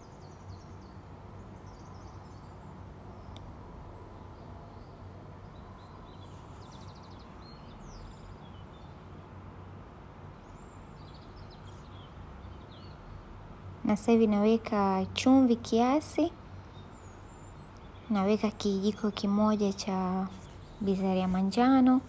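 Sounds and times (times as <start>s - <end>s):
birds chirping: 0.0s - 8.9s, 13.9s - 22.0s
low background hum: 0.0s - 22.0s.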